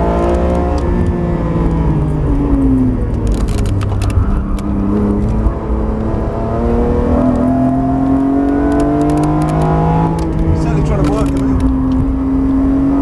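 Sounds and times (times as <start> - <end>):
car engine accelerating: 0.0 - 13.0
sharp clicks: 8.1 - 12.0.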